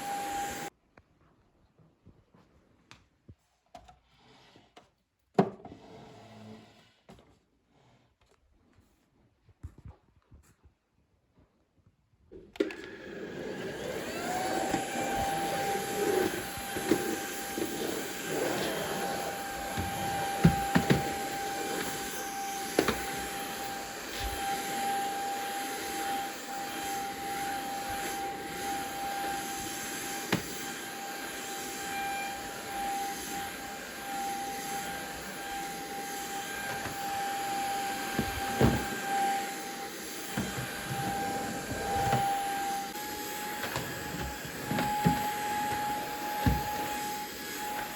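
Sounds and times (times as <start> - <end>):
appliance motor whining: 12.6 - 47.9.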